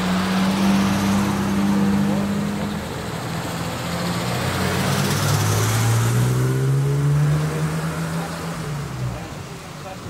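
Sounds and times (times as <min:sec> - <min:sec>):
car engine revving up: 0:00.0 - 0:09.4.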